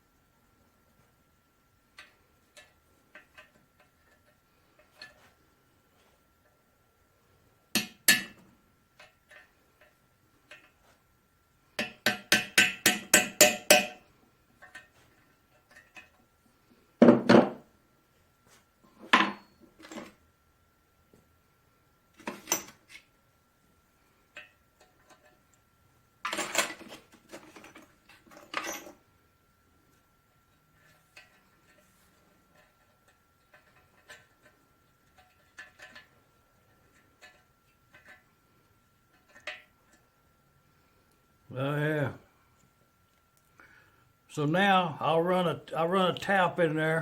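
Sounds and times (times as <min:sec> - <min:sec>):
hammer striking metal chisel: 0:07.8 - 0:08.4, 0:11.8 - 0:14.0.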